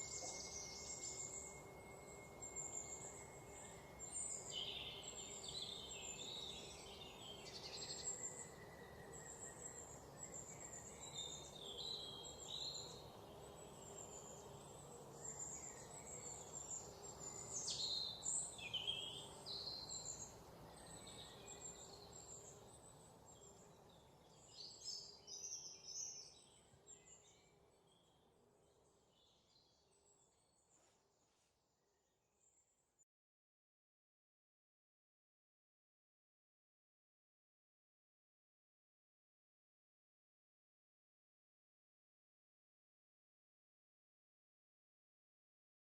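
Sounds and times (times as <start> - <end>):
birds singing and chirping: 0.0 - 28.2
steady background hiss: 0.0 - 28.2.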